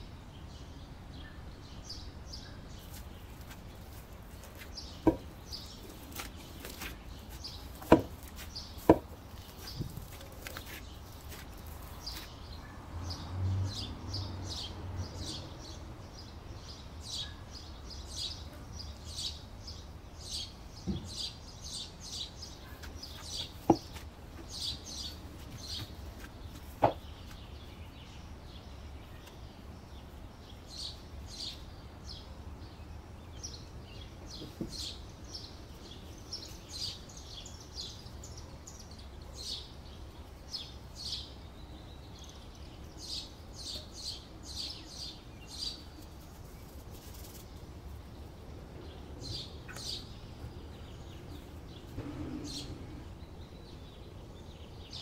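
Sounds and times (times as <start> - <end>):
small birds chirping: 0.0 - 55.0
soft handling noise: 5.8 - 12.4.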